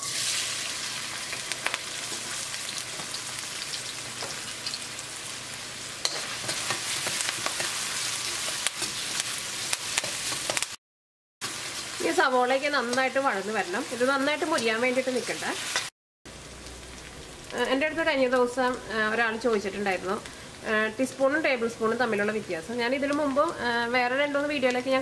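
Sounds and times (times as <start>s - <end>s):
food sizzling in oil: 0.0s - 10.8s, 11.4s - 25.0s
spoon scraping a wok: 6.0s - 9.3s.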